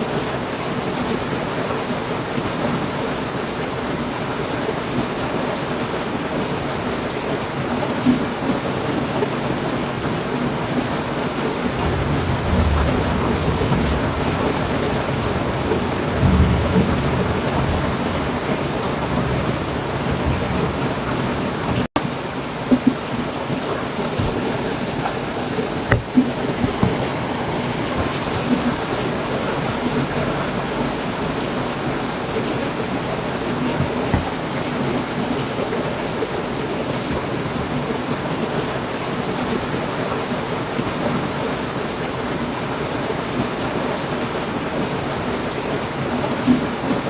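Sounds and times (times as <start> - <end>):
heavy rain falling: 0.0 - 47.0
thunder rumbling: 11.5 - 21.9.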